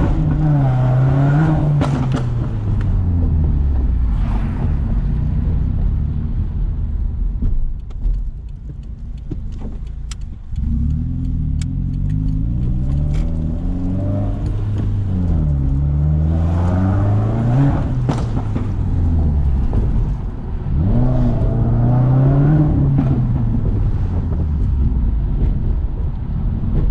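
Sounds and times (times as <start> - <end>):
car engine revving: 0.0 - 7.5, 8.7 - 26.9
exhaust pops: 0.0 - 15.9, 17.0 - 21.5.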